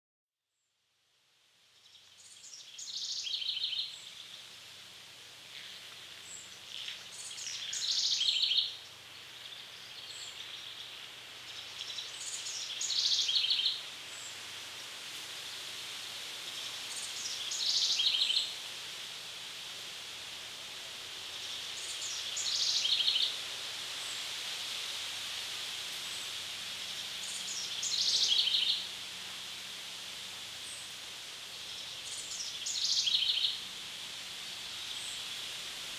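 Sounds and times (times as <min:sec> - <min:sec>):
woodland background hiss: 0:00.6 - 0:35.9
songbird singing: 0:01.8 - 0:04.6, 0:05.5 - 0:14.4, 0:16.5 - 0:18.6, 0:21.3 - 0:23.4, 0:27.1 - 0:29.2, 0:30.5 - 0:33.8, 0:34.4 - 0:35.5.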